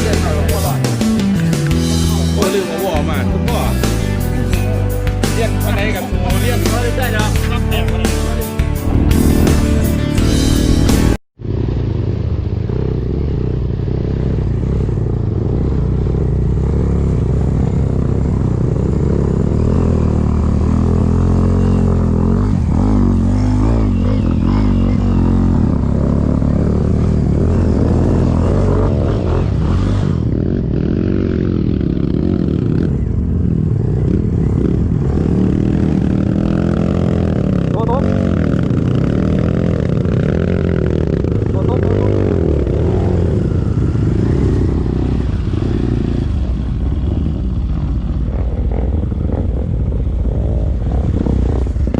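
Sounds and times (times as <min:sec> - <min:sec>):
vehicle engine revving: 0:00.0 - 0:51.9.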